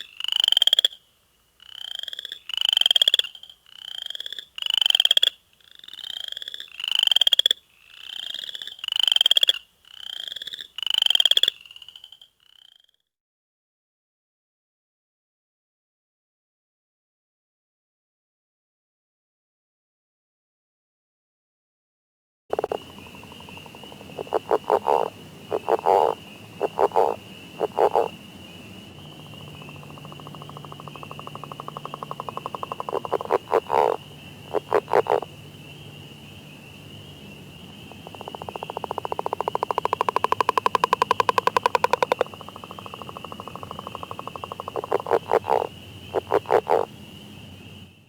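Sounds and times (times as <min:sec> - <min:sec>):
frog rattling calls: 0:00.0 - 0:01.0, 0:01.6 - 0:12.8, 0:22.5 - 0:47.9
distant frog chorus: 0:00.0 - 0:12.9, 0:22.5 - 0:48.0
frog pulsed croaks: 0:22.5 - 0:47.9.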